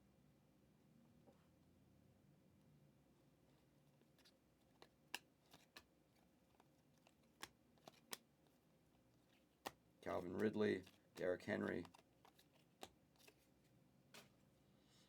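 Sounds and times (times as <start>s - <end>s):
trading cards clicking and snapping: 4.1s - 8.6s, 9.2s - 13.5s.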